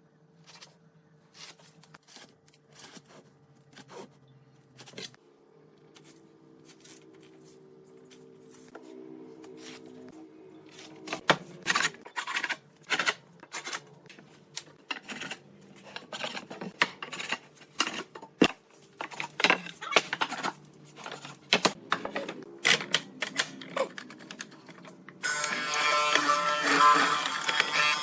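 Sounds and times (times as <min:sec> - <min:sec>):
hand tools scraping wood: 0:14.8 - 0:21.8.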